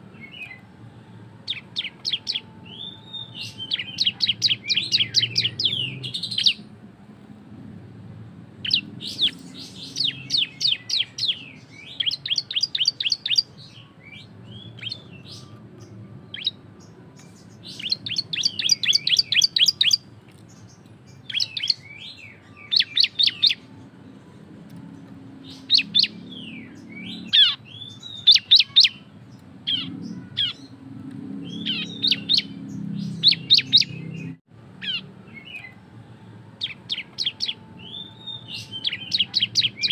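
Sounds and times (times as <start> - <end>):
songbird sharp high chirping: 1.5 - 6.7, 8.6 - 23.7, 25.3 - 29.1, 31.4 - 35.8, 36.6 - 39.9.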